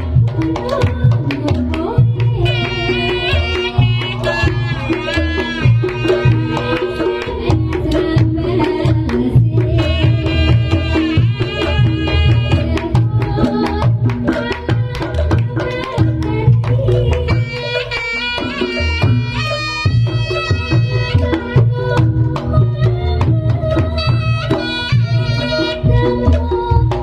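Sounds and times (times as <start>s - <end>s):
hand drums beating: 0.0s - 27.0s
high bending melody line: 2.2s - 8.2s.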